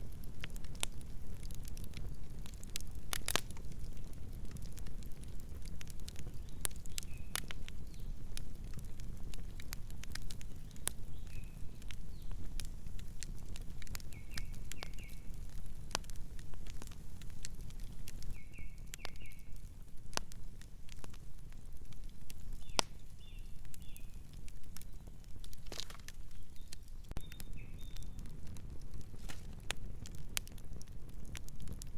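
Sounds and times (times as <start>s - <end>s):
wood fire crackling and popping: 0.0s - 31.9s
small bird chirping: 6.4s - 8.1s, 14.0s - 15.3s, 18.3s - 19.6s, 22.6s - 24.2s, 26.2s - 28.2s.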